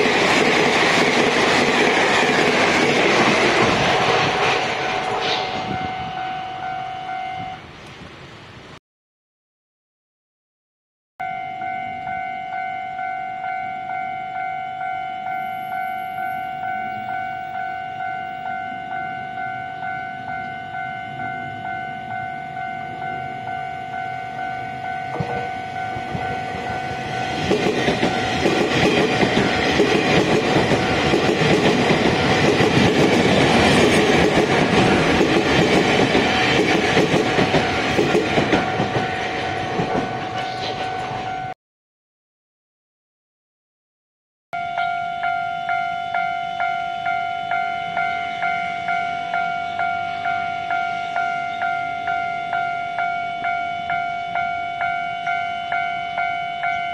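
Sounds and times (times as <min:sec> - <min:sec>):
train wheel and rail noise: 0:00.0 - 0:08.7, 0:11.2 - 0:41.6, 0:44.6 - 0:56.9
level crossing bell ringing: 0:04.7 - 0:07.6, 0:11.2 - 0:28.5, 0:38.6 - 0:41.6, 0:44.6 - 0:56.9.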